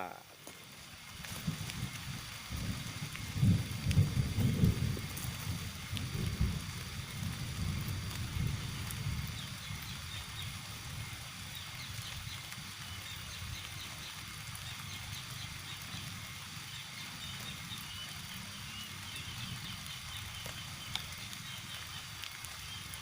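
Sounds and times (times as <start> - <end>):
small birds chirping: 7.3 - 23.0.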